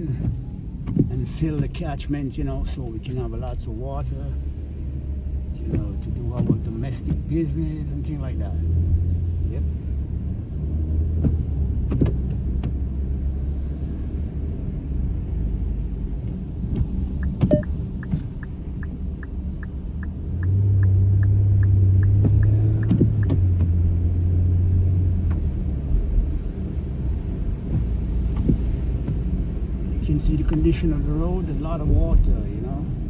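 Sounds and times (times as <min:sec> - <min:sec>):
car rumble on wet road: 0:00.0 - 0:33.0.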